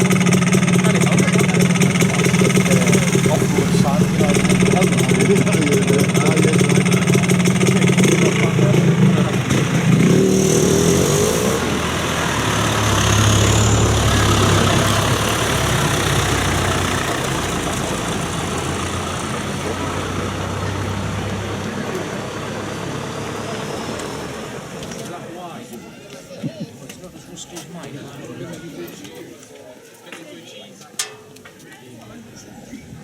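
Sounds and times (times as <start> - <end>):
tractor engine revving: 0.0 - 25.0
deep tractor engine: 0.0 - 25.1.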